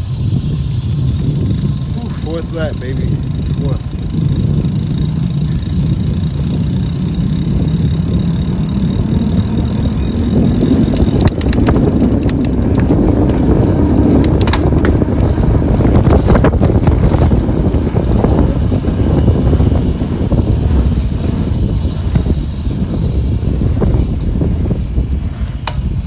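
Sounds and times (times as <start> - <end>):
tyres on road: 0.0 - 26.0
wind on microphone: 0.0 - 26.0
sharp clicks: 10.7 - 13.4.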